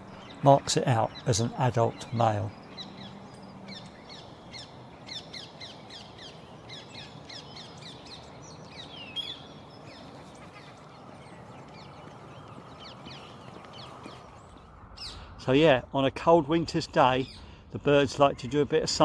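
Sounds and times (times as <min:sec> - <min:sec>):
low background hum: 0:00.0 - 0:04.6
birds chirping: 0:00.0 - 0:19.0.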